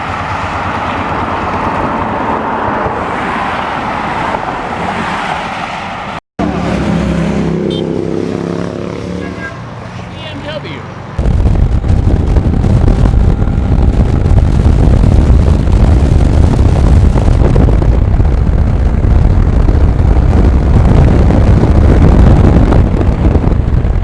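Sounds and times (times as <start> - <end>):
motorcycle roar at speed: 6.4 - 9.5, 11.2 - 24.0
wind buffeting microphone: 11.2 - 24.0.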